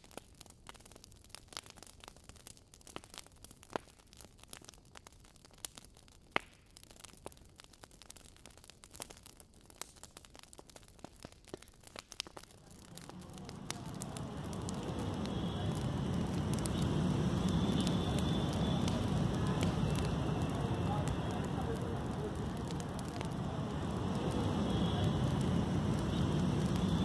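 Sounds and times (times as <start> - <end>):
faint crackles and clicks: 0.0 - 27.0
low outdoor rumbling: 12.6 - 27.0.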